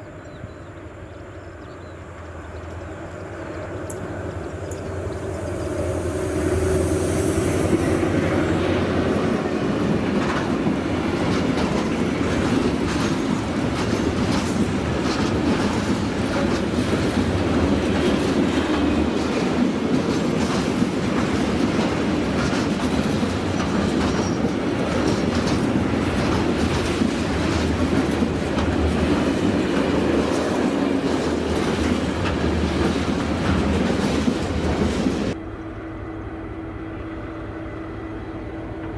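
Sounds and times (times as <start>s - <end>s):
train wagons rolling past: 0.1s - 35.4s
wheels clacking over rail joints: 7.7s - 35.4s.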